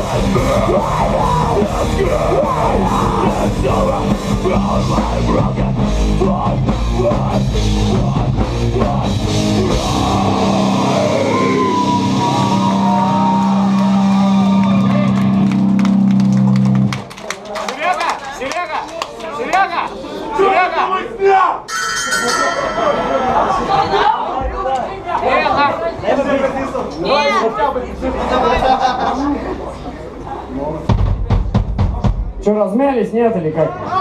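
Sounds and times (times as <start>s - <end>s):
drum kit: 0.0s - 13.2s, 30.8s - 32.5s
rock band playing: 0.0s - 16.9s.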